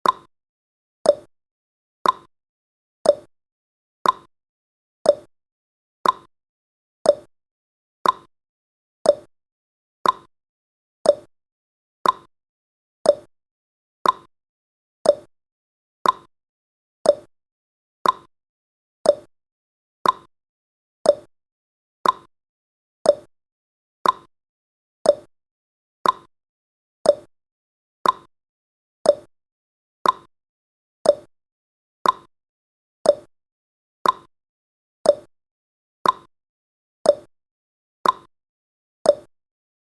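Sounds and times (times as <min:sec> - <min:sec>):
clock tick-tock: 0:00.0 - 0:00.3, 0:01.0 - 0:01.3, 0:02.0 - 0:02.3, 0:03.0 - 0:03.3, 0:04.0 - 0:04.3, 0:05.0 - 0:05.3, 0:06.0 - 0:06.3, 0:07.0 - 0:07.3, 0:08.0 - 0:08.3, 0:09.0 - 0:09.3, 0:10.0 - 0:10.3, 0:11.0 - 0:11.3, 0:12.0 - 0:12.3, 0:13.0 - 0:13.3, 0:14.0 - 0:14.3, 0:15.0 - 0:15.3, 0:16.0 - 0:16.3, 0:17.0 - 0:17.3, 0:18.0 - 0:18.3, 0:19.0 - 0:19.3, 0:20.0 - 0:20.3, 0:21.0 - 0:21.3, 0:22.0 - 0:22.3, 0:23.0 - 0:23.3, 0:24.0 - 0:24.3, 0:25.0 - 0:25.3, 0:26.0 - 0:26.3, 0:27.0 - 0:27.3, 0:28.0 - 0:28.3, 0:29.0 - 0:29.3, 0:30.0 - 0:30.3, 0:31.0 - 0:31.3, 0:32.0 - 0:32.3, 0:33.0 - 0:33.3, 0:34.0 - 0:34.3, 0:35.0 - 0:35.3, 0:36.0 - 0:36.3, 0:37.0 - 0:37.3, 0:38.0 - 0:38.3, 0:39.0 - 0:39.4.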